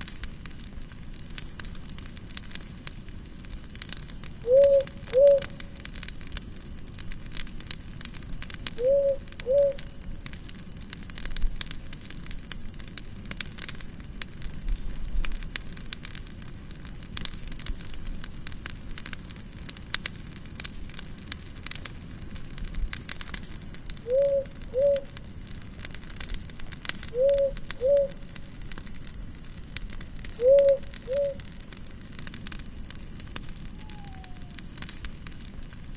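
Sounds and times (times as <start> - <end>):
campfire crackling and popping: 0.0 - 35.9
quick high chirps: 1.4 - 2.7, 14.8 - 15.1, 17.7 - 20.0.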